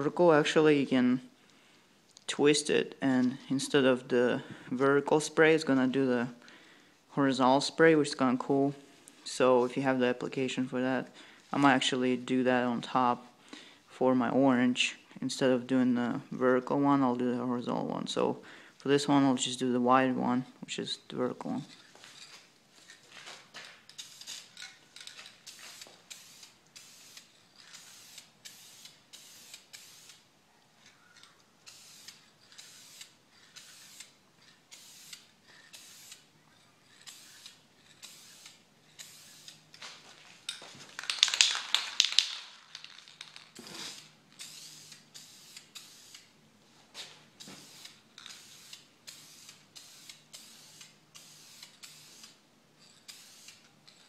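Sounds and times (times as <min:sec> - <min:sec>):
aerosol spray can hissing: 0:25.4 - 0:30.2, 0:31.6 - 0:36.3, 0:37.0 - 0:39.6, 0:43.7 - 0:46.3, 0:47.4 - 0:52.4, 0:53.1 - 0:53.7.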